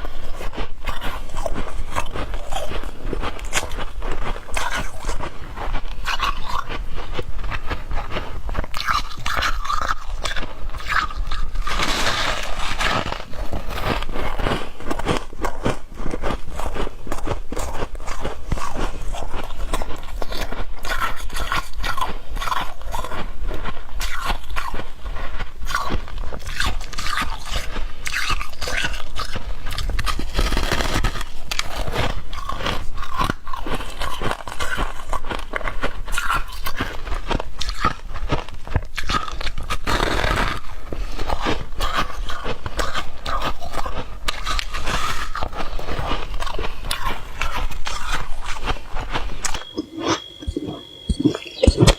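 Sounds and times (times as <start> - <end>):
chewing frost crunching: 0.0 - 51.9.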